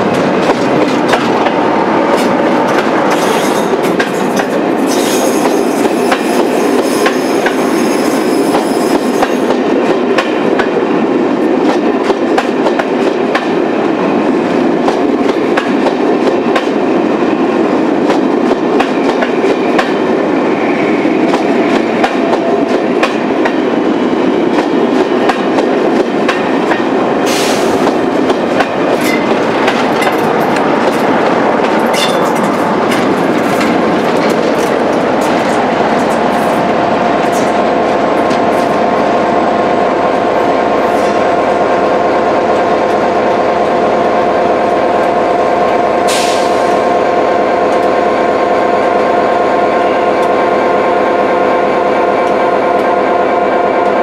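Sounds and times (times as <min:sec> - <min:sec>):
diesel locomotive passing: 0:00.0 - 0:54.0
high wheel squeal: 0:04.8 - 0:09.4.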